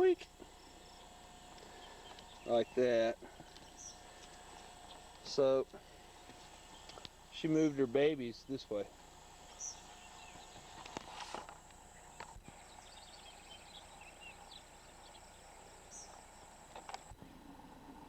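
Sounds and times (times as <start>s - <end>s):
high chirps of birds or insects: 0.0s - 18.0s
steady faint hum: 0.0s - 18.0s
soft rustles and clicks: 10.4s - 12.6s.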